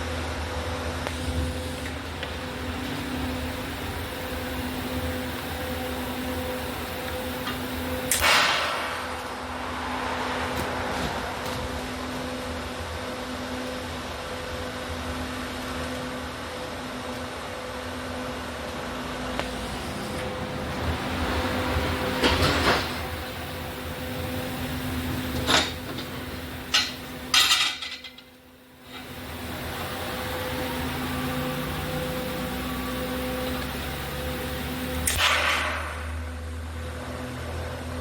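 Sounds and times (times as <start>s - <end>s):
welding equipment humming and hissing: 1.0s - 9.6s, 19.3s - 37.5s
metal clanks and knocks: 25.4s - 28.3s.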